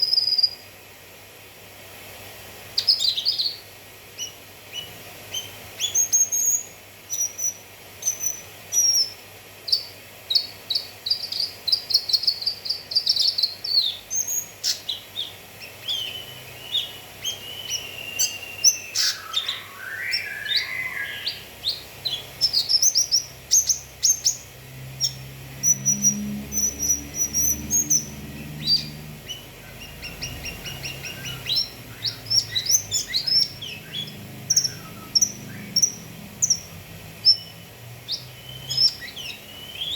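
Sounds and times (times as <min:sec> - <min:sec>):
bird chirping and trilling: 0:00.0 - 0:00.7, 0:02.8 - 0:39.9
bird call sweeping down: 0:16.0 - 0:21.4.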